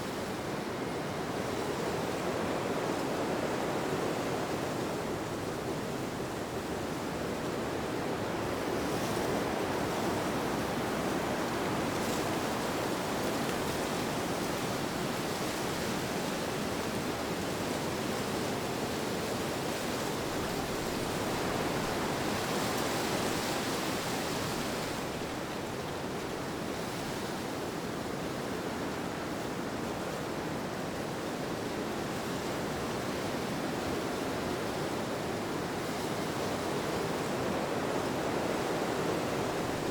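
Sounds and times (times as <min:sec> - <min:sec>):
rushing wind: 0:36.7 - 0:39.9.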